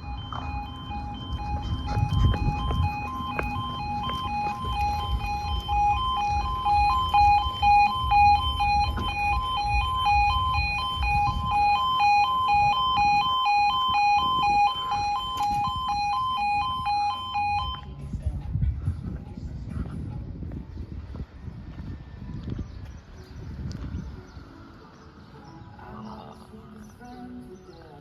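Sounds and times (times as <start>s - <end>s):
two-tone electronic crossing alarm: 0.0s - 18.0s.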